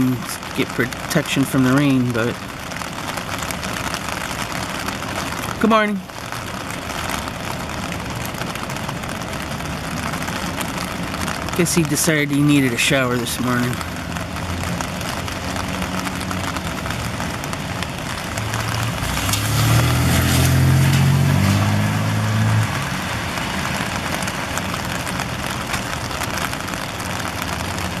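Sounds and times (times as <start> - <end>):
heavy rain on a car: 0.0 - 28.0
vehicle engine low hum: 13.8 - 28.0.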